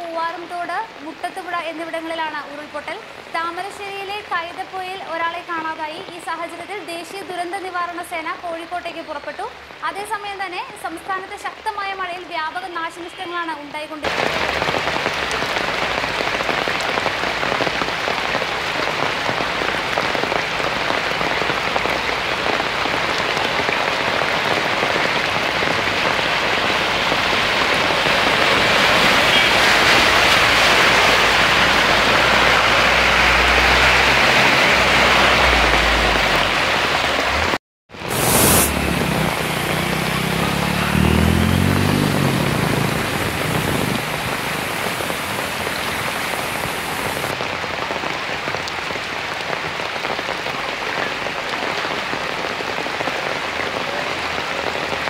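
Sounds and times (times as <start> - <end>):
heavy rain hissing: 14.0 - 55.0
vehicle driving through floodwater: 14.1 - 47.4
running water: 38.0 - 47.4.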